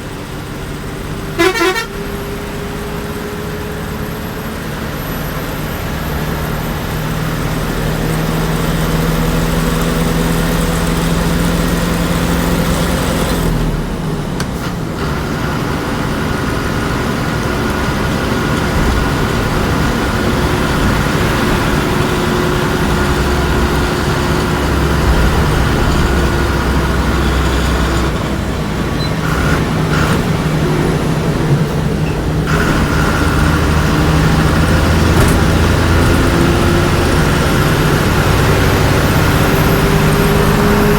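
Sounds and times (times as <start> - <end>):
bus diesel engine running: 0.0 - 40.9.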